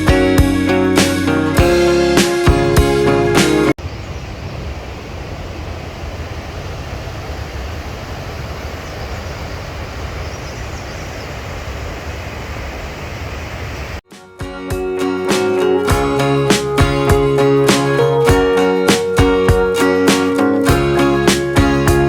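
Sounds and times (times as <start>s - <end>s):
acoustic guitar music: 0.0s - 3.7s, 14.1s - 22.0s.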